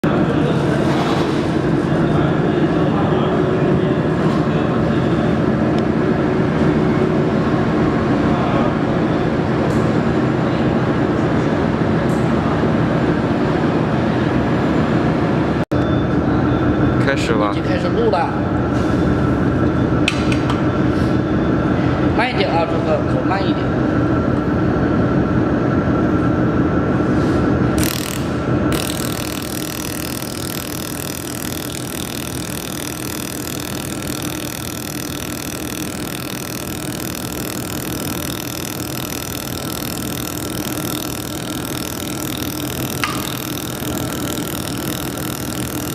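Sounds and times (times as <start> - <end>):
laser welder humming and hissing: 27.6 - 45.9.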